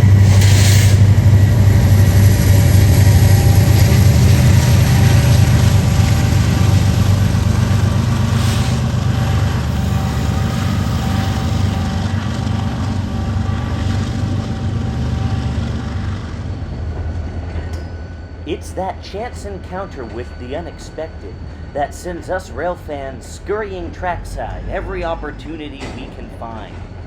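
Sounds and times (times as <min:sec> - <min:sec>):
diesel locomotive engine drone: 0:00.0 - 0:27.0
train rolling noise: 0:00.0 - 0:27.0.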